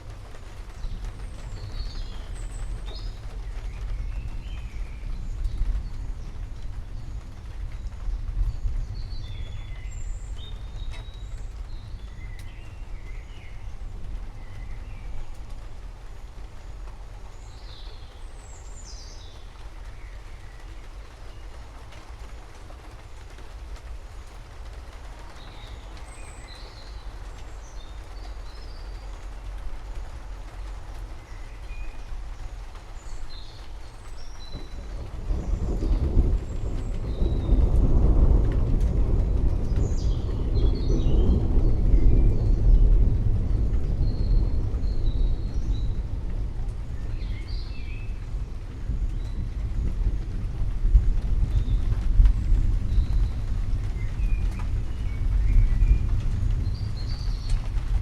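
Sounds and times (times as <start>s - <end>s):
low rumble: 0.0s - 21.0s, 34.2s - 58.0s
rain hiss: 0.0s - 58.0s
songbirds chirping: 0.0s - 58.0s.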